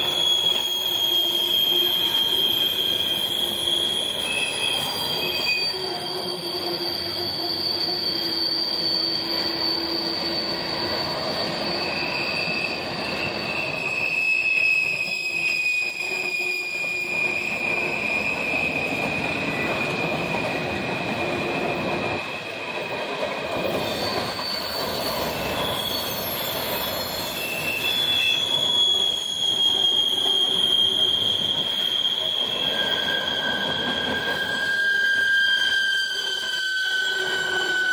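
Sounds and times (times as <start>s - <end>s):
freight train wheels rumbling: 0.0s - 37.9s
wheel squeals: 0.0s - 37.9s.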